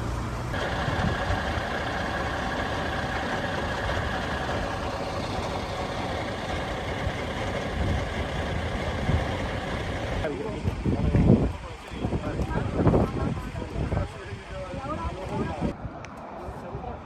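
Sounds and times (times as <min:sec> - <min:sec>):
helicopter engine whine: 0:00.6 - 0:10.3.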